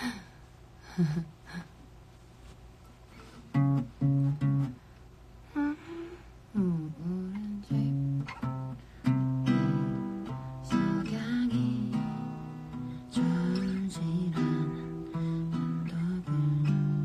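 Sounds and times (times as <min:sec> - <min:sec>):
acoustic guitar playing: 0:03.2 - 0:04.8, 0:07.6 - 0:17.0.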